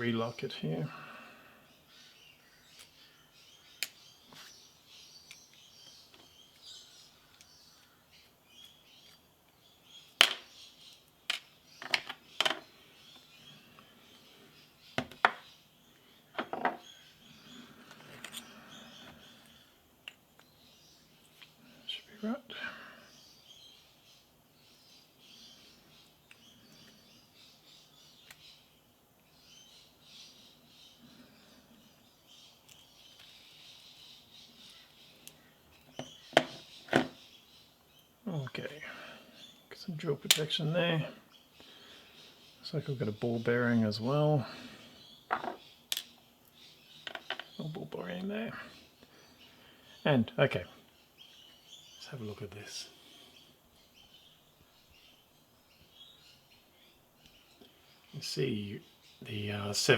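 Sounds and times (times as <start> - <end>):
birds chirping faintly: 0.0 - 59.9
faint small clicks: 7.3 - 7.5
metallic clicks of lock parts: 45.9 - 46.2.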